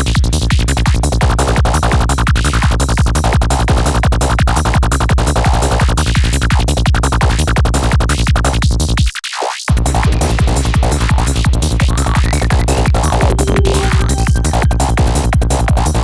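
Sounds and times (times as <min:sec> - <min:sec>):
trance dance music: 0:13.1 - 0:16.0
rising high sweep: 0:13.2 - 0:16.0.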